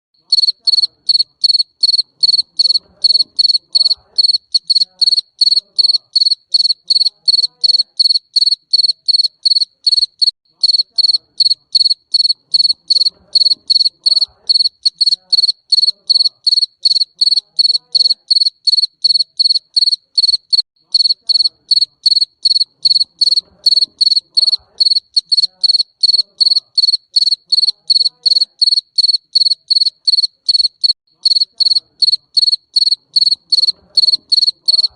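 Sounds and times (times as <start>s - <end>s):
cricket chirping: 0.2s - 34.9s.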